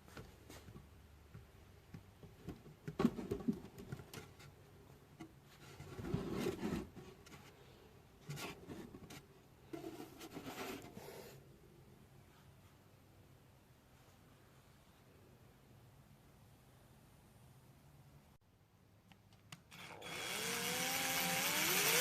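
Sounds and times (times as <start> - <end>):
rustling and scraping: 2.3 - 11.4.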